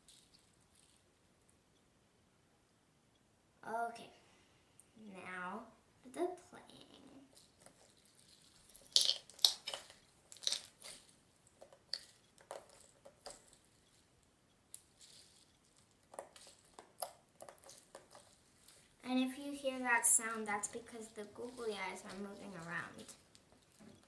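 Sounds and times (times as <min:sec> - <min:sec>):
slime squishing and crackling: 0:07.2 - 0:14.1, 0:14.7 - 0:24.0.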